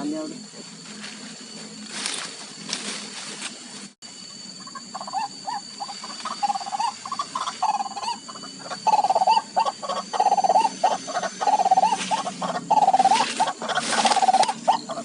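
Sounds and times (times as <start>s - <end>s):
waterhen croaking calls: 4.6s - 15.0s.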